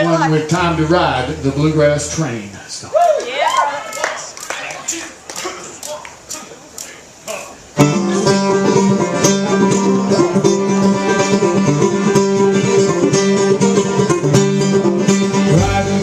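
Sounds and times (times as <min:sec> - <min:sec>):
bluegrass band with mandolin: 0:00.0 - 0:03.0, 0:07.8 - 0:16.0.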